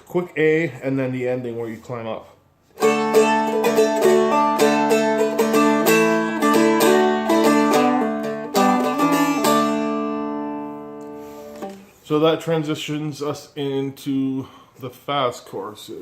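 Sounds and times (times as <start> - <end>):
acoustic guitar strummed chords: 2.8 - 11.9.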